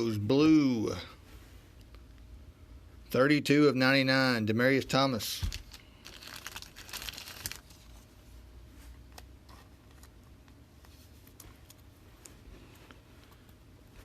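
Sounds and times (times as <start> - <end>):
packaging crinkling: 5.4 - 8.1.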